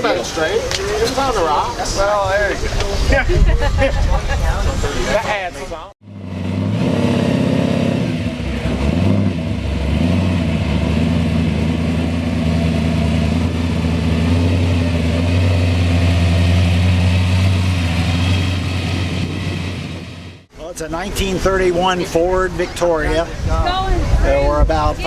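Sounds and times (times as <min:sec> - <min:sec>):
car engine idling: 0:08.3 - 0:20.5.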